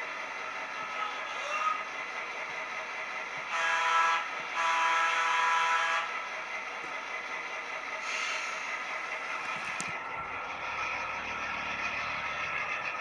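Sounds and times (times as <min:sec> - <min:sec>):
locomotive horn blasts: 0:03.5 - 0:06.2.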